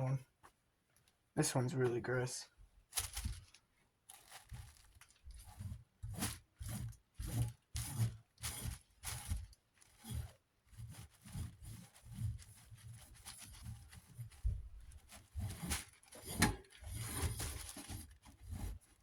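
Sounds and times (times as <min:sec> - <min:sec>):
scrubbing metal fan guard: 0:15.3 - 0:18.8.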